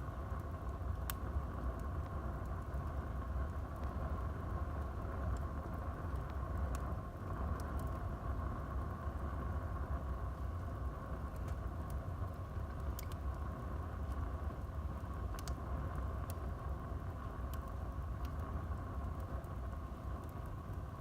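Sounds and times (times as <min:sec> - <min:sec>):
fire crackles and pops: 0:00.0 - 0:21.0
wood fire rumbling: 0:00.0 - 0:21.0.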